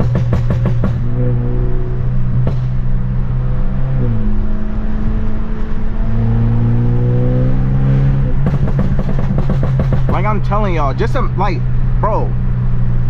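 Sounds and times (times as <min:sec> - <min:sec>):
car exhaust droning: 0:00.0 - 0:13.0
exhaust cracks: 0:08.2 - 0:11.2.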